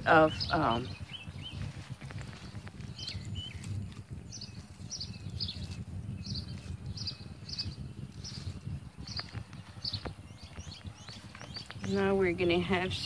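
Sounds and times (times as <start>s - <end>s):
bird chirping: 0.0s - 13.0s
low steady rumble: 0.0s - 13.0s.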